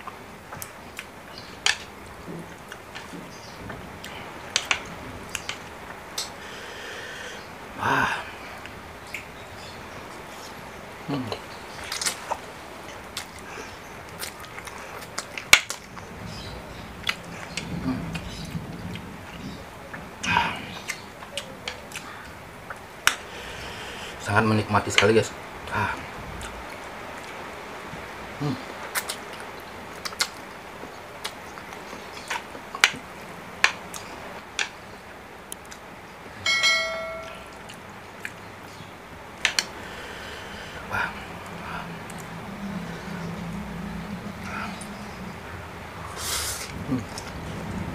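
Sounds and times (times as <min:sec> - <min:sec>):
utensil clinking bowl: 0:36.4 - 0:37.6.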